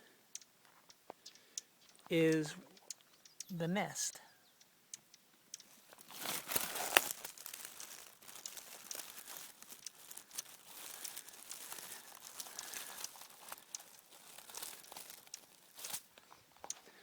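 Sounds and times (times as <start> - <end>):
rustling and crackling at microphone: 5.0 - 17.0.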